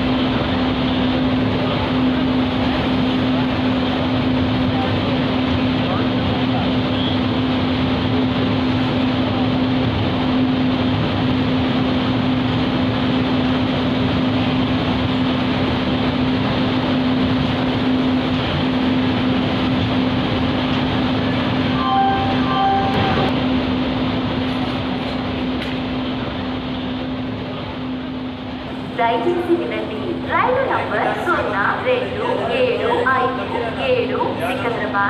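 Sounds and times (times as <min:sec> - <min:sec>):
low hum: 0:00.0 - 0:35.0
train wheels rumbling on rail: 0:00.0 - 0:35.0
two-part tone: 0:21.7 - 0:23.4.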